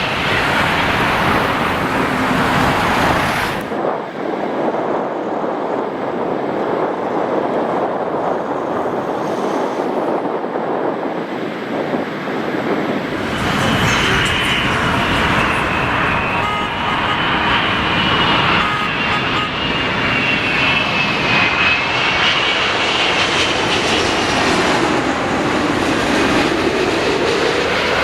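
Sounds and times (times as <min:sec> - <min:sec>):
high engine whine: 0:00.0 - 0:04.1, 0:12.6 - 0:28.0
jet engines rushing: 0:00.0 - 0:28.0.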